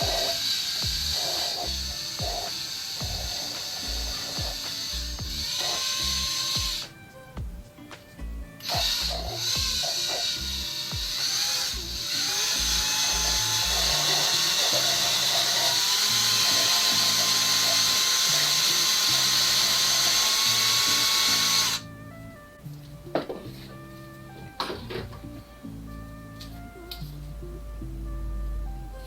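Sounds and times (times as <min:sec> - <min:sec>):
drill grinding valve in seat: 0:00.0 - 0:06.9, 0:08.6 - 0:21.8
background music: 0:00.0 - 0:29.0.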